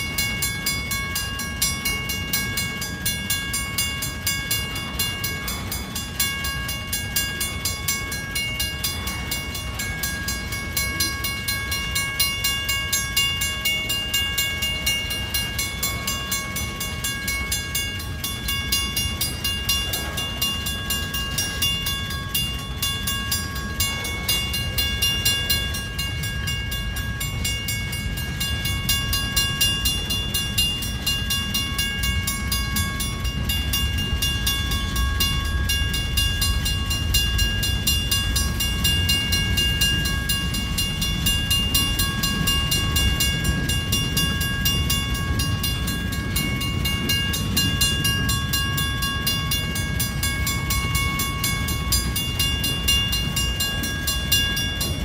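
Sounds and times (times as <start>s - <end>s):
high ringing tones: 0.0s - 55.0s
wheels rumbling on rail: 0.0s - 55.0s.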